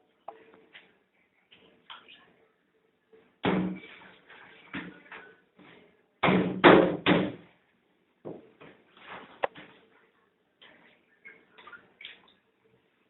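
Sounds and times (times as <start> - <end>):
hollow knocks on metal cabinet: 6.2 - 7.4.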